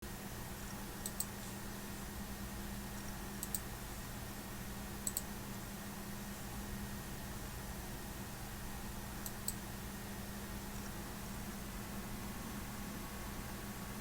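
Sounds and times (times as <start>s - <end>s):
steady low hum: 0.1s - 14.0s
sharp double clicks: 3.4s - 3.7s, 5.0s - 5.3s.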